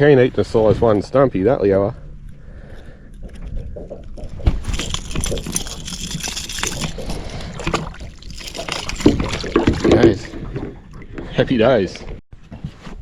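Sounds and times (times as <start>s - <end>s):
water splashing and sloshing: 2.6s - 12.2s.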